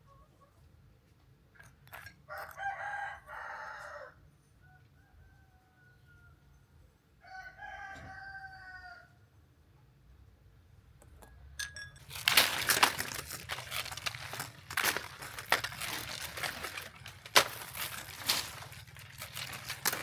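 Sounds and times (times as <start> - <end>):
rooster crowing: 2.3 - 6.4, 7.2 - 9.2
loud crunching and rustling: 12.0 - 20.0.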